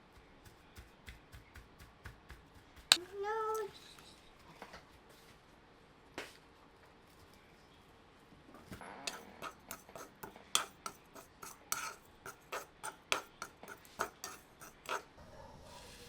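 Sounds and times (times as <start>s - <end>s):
utensils tapping against a bowl: 9.1s - 15.1s.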